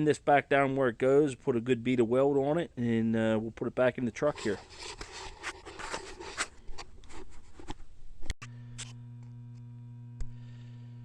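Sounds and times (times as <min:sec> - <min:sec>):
welder electrical hum: 0:08.4 - 0:11.0.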